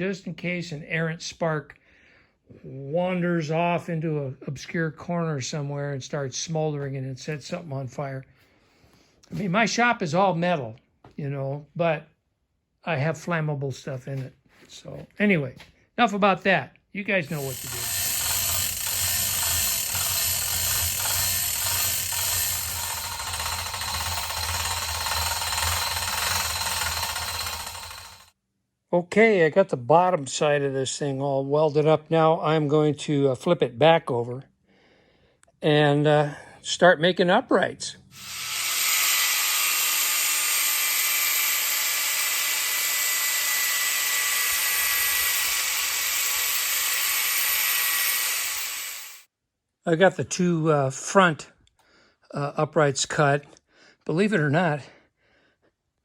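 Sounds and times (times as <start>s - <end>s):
power tool cutting steel: 17.2s - 28.3s, 38.2s - 49.3s.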